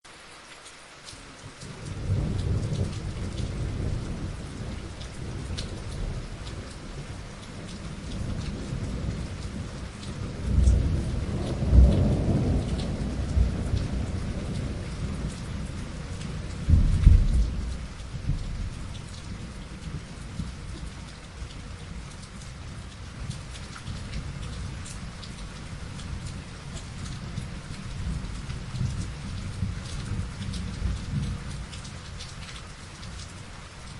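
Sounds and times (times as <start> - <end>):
rain falling: 0.0 - 33.9
thunder rumbling: 1.6 - 32.1
loud thunder claps: 1.9 - 20.9.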